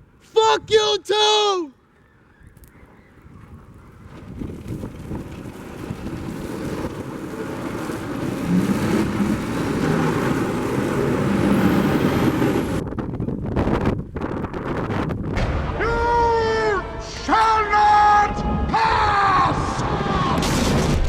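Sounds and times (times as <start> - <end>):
road noise: 1.3 - 15.2
vehicle engine: 3.7 - 13.0.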